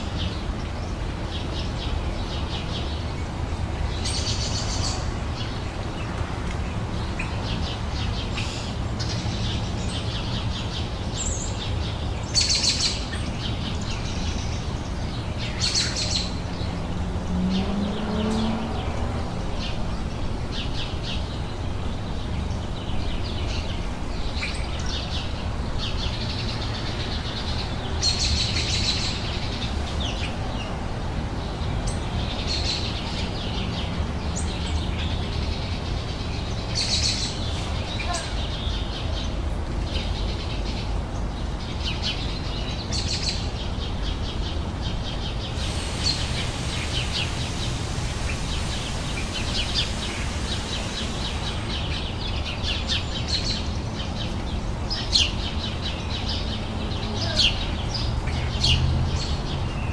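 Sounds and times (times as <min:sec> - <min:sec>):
small songbirds chirping: 0:00.0 - 0:59.9.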